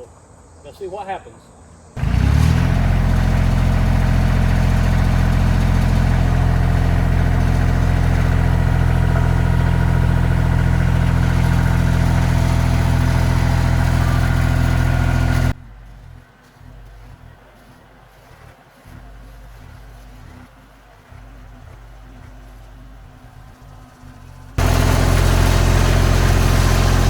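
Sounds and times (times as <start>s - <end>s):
tractor diesel engine running: 2.0s - 18.1s, 18.8s - 27.0s.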